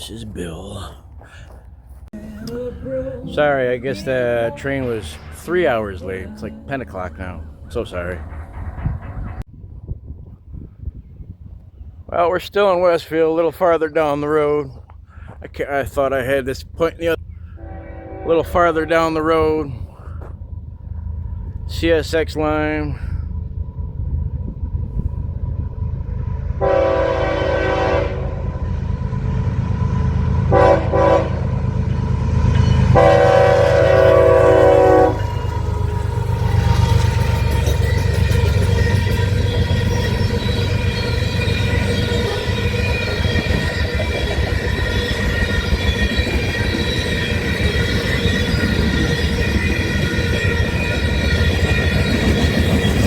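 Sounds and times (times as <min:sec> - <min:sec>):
passing train rumble: 0:00.0 - 0:53.0
locomotive air horn blasts: 0:17.5 - 0:19.2, 0:26.6 - 0:28.5, 0:30.4 - 0:31.5, 0:32.8 - 0:35.8
high-pitched wheel whine: 0:31.9 - 0:53.0.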